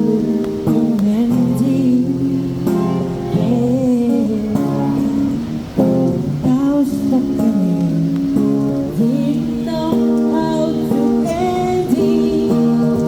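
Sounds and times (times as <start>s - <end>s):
person singing: 0.0s - 5.4s, 6.2s - 13.0s
acoustic guitar: 0.0s - 13.0s.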